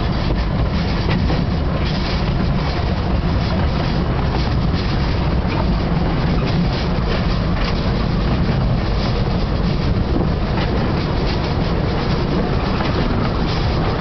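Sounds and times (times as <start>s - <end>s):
faint clicks from rails: 0.0s - 14.0s
train carriage rumbling on track: 0.0s - 14.0s.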